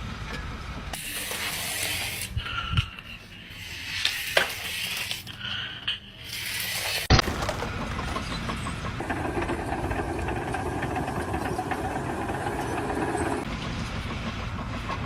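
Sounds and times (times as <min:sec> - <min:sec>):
engine running with fast rattle: 0:06.7 - 0:15.0.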